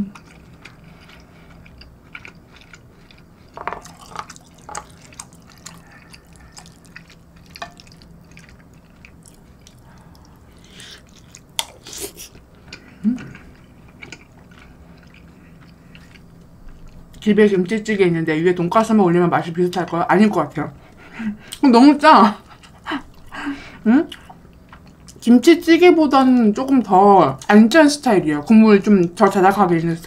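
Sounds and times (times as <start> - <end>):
wet chewing and mouth smacks: 0.1 - 17.2.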